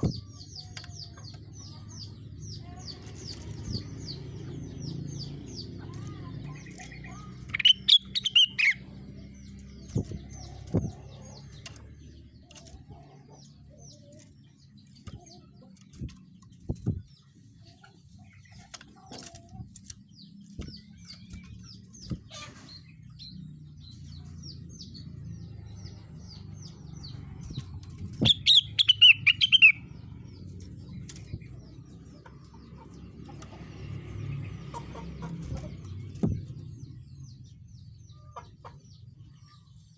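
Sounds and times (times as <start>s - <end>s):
songbird singing falling notes: 0.0s - 39.6s.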